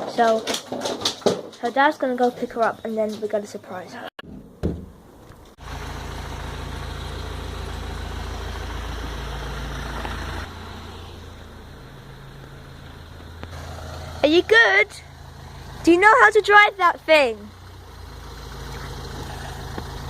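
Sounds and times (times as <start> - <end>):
car engine running: 5.2 - 20.0.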